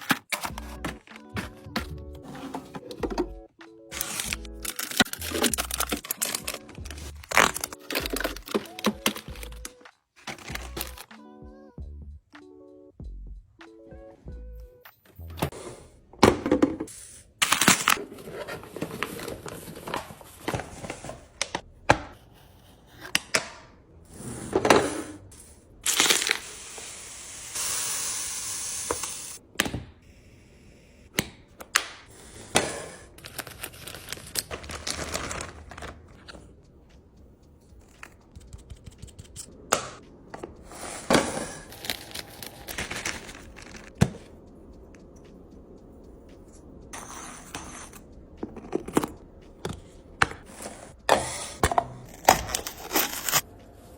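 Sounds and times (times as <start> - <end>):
packaging clicking and knocking: 0.0 - 11.1, 16.2 - 22.2, 32.5 - 36.4, 41.0 - 44.3, 48.4 - 53.4
packaging crinkling: 4.0 - 11.0, 33.2 - 36.2, 41.6 - 43.9, 52.3 - 53.4
steady hiss: 26.1 - 29.4.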